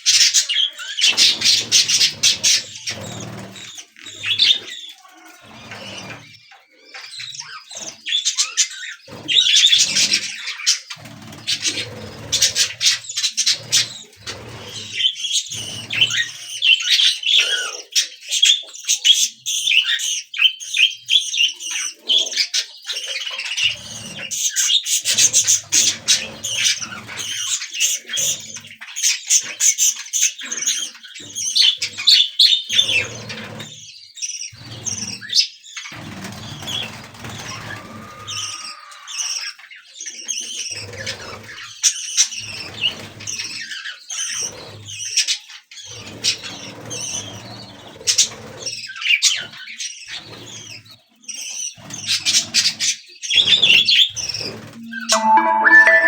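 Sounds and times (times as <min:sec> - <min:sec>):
budgerigars chirping and warbling: 0:00.0 - 0:55.4.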